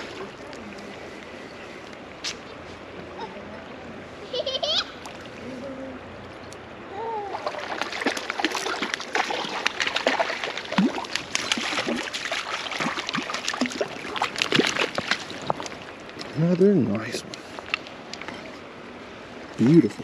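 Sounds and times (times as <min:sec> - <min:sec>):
creek water running: 0:00.0 - 0:20.0
fish splashing at the surface: 0:07.2 - 0:16.0.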